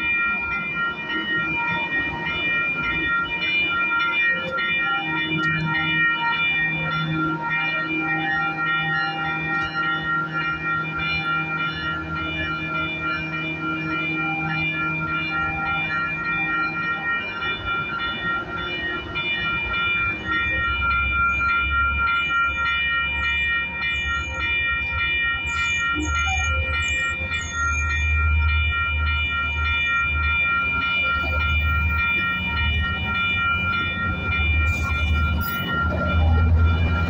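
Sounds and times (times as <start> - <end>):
high ringing tone: 0.0 - 37.0
train cars rolling by rumbling: 0.0 - 37.0.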